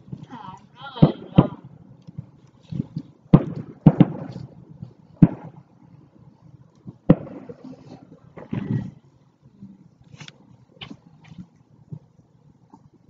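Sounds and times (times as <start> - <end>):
fireworks bangs with echo: 0.0 - 2.3, 3.3 - 4.6, 5.2 - 5.6, 7.0 - 8.6.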